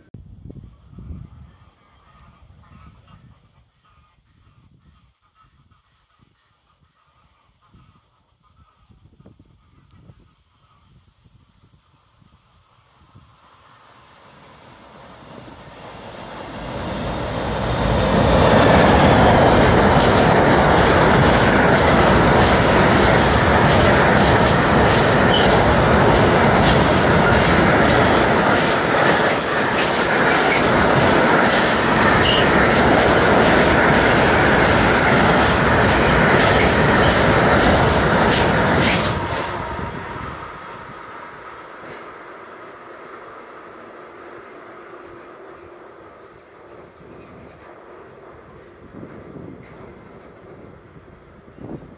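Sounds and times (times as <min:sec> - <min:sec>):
freight train wagons rumbling: 0:12.7 - 0:51.9
wheels clicking over rails: 0:15.4 - 0:39.9.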